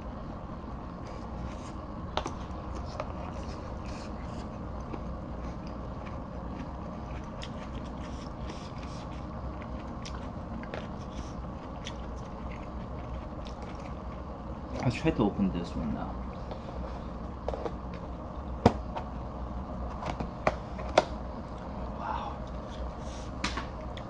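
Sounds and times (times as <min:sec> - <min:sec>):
steady low hum: 0:00.0 - 0:24.0
person chewing food: 0:01.0 - 0:14.8.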